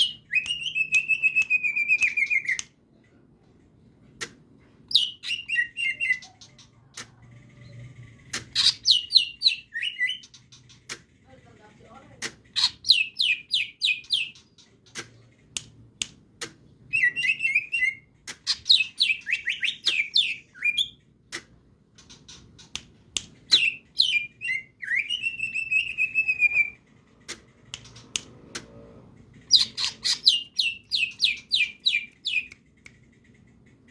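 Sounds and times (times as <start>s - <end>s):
bird chirping and whistling: 0.0s - 2.6s, 4.9s - 6.4s, 8.6s - 10.3s, 12.6s - 14.4s, 16.9s - 21.0s, 23.5s - 26.8s, 29.5s - 32.5s.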